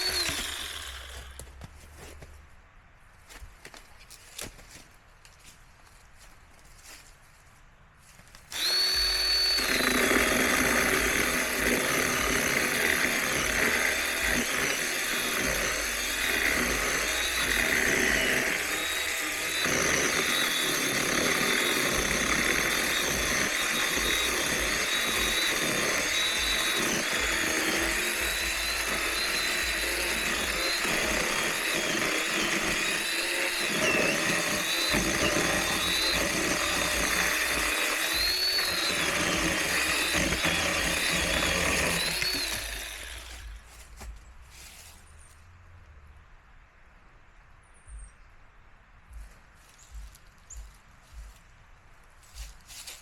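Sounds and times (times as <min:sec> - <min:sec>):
electric chainsaw cutting wood: 0:00.0 - 0:01.5, 0:08.5 - 0:44.1.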